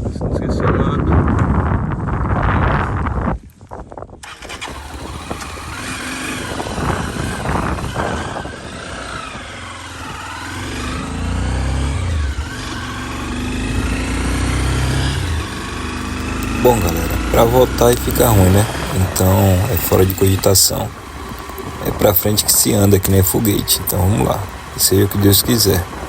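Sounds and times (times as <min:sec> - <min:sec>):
motorcycle engine running: 0:04.2 - 0:26.0
strong low hum: 0:06.4 - 0:26.0.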